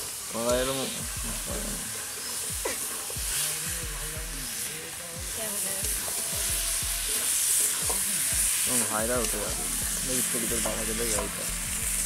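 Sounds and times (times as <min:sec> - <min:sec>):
curry sizzling in a pan: 0:00.0 - 0:12.0.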